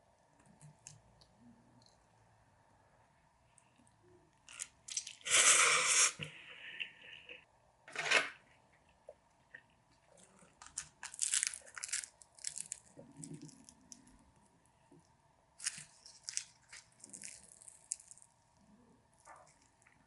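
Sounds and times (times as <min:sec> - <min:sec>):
person chewing crunchy food: 0:09.5 - 0:14.2, 0:15.6 - 0:20.0.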